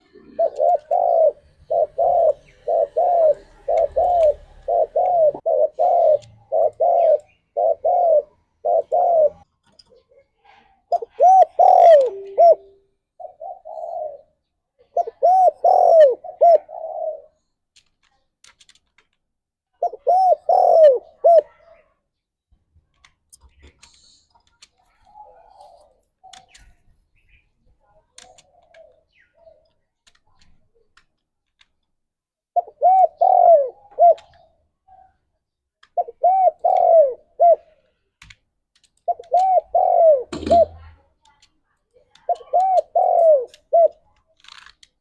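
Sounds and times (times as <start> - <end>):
dove cooing: 0.0 - 10.1, 10.9 - 17.4, 19.8 - 21.9, 25.0 - 26.6, 28.2 - 29.6, 32.6 - 35.2, 36.0 - 37.8, 39.1 - 41.0, 42.1 - 44.1.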